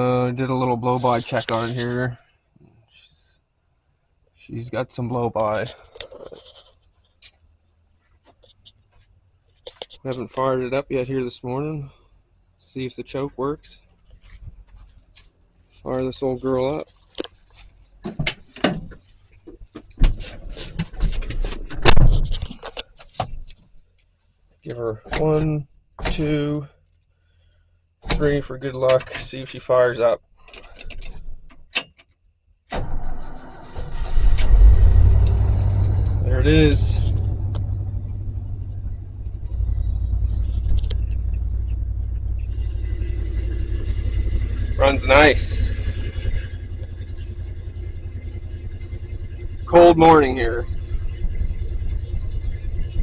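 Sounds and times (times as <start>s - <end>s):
clunks and scrapes in vehicle cab: 17.5s - 23.7s
truck engine rumbling: 32.8s - 53.0s.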